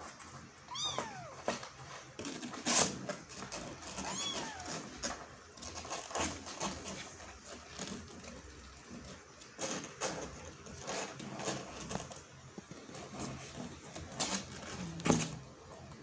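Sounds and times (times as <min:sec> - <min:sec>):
kitten scratching and rustling: 0:00.0 - 0:16.0
kitten meow: 0:00.7 - 0:01.6, 0:04.0 - 0:05.0.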